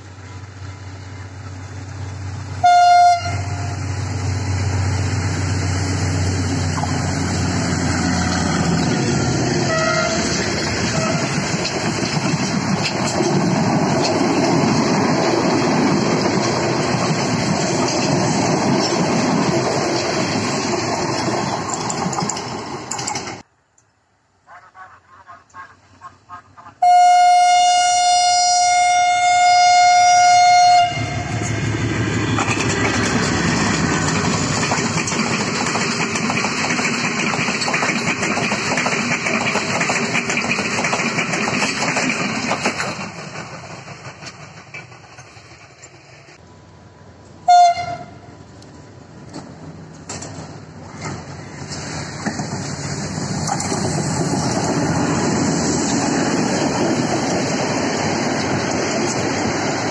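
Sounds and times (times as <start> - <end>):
diesel locomotive rumbling past: 0.0 - 23.5, 26.8 - 59.9
diesel locomotive horn blast: 2.6 - 4.0, 9.6 - 11.4, 26.8 - 31.5, 47.4 - 48.3
train wheels clattering over rails: 6.2 - 23.5, 31.0 - 46.4, 49.2 - 59.9.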